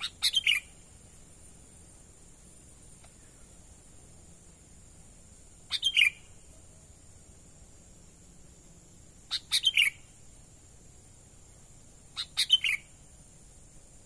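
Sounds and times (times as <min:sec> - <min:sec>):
bird calling: 0:00.0 - 0:00.8, 0:05.7 - 0:06.8, 0:09.3 - 0:10.1, 0:12.1 - 0:13.0.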